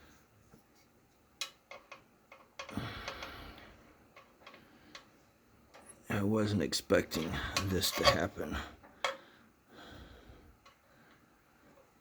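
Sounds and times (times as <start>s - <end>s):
small metal clicks and taps: 1.4s - 3.3s.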